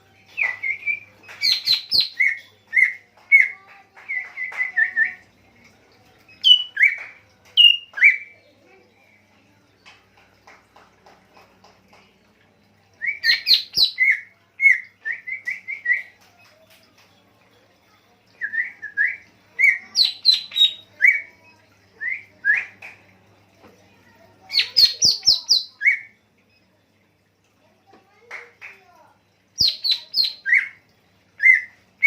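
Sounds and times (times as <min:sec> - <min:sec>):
songbird chirping and whistling: 0:00.3 - 0:05.2, 0:06.3 - 0:08.4, 0:13.0 - 0:16.2, 0:18.3 - 0:22.9, 0:24.5 - 0:26.2, 0:29.6 - 0:30.8, 0:31.4 - 0:31.8.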